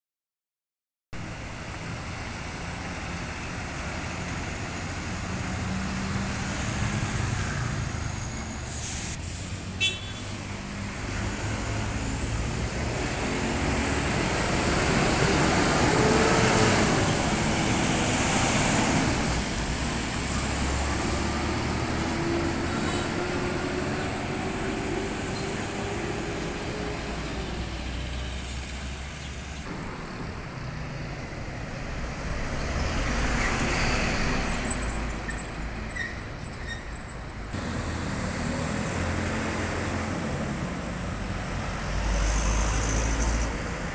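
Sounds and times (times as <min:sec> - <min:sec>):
road traffic: 0:01.2 - 0:43.9
truck engines running: 0:01.2 - 0:43.9
brief sharp hiss: 0:08.7 - 0:09.7.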